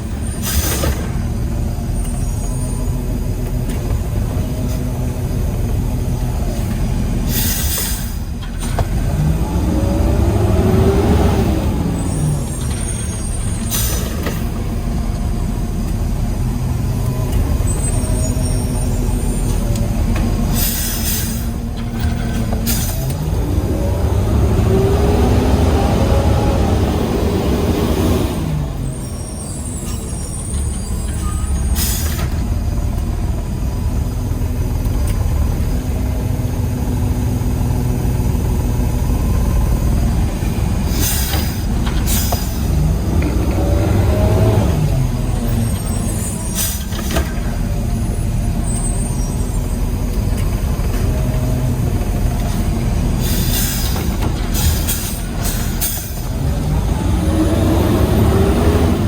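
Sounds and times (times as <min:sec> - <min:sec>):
garbage truck diesel engine: 0:00.0 - 0:59.0
sharp air hisses: 0:07.3 - 0:08.4.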